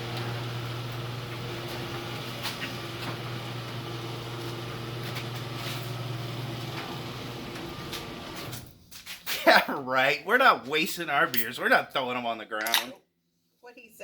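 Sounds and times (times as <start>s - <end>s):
garage door opener motor humming: 0.0s - 8.8s.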